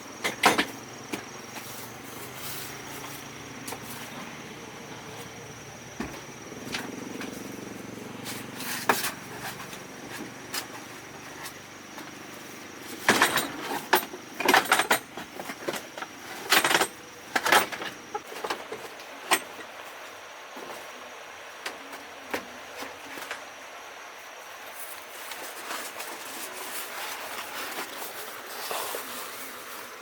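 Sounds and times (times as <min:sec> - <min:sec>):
sharp knocks and clatter: 0:00.2 - 0:01.7, 0:12.9 - 0:19.7.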